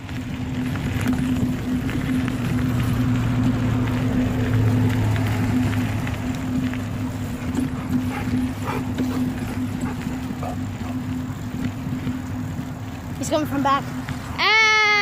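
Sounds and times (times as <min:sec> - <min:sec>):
mountain bike rattling over rough ground: 0:00.0 - 0:15.0
steady low hum: 0:05.8 - 0:13.2.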